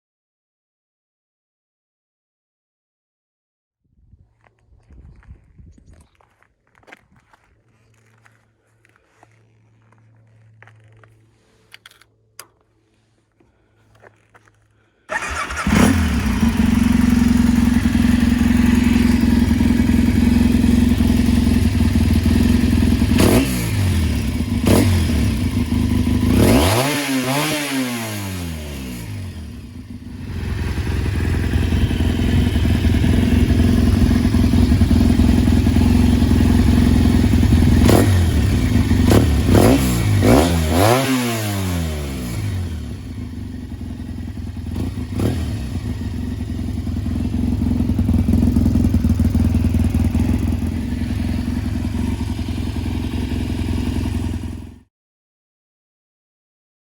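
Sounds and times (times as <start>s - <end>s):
motorcycle engine revving: 15.1s - 54.8s.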